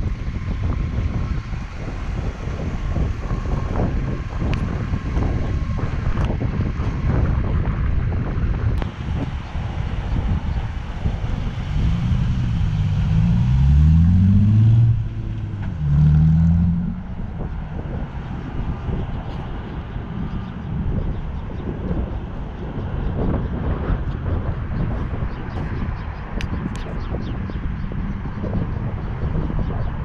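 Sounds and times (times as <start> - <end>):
car engine revving: 8.8 - 19.0.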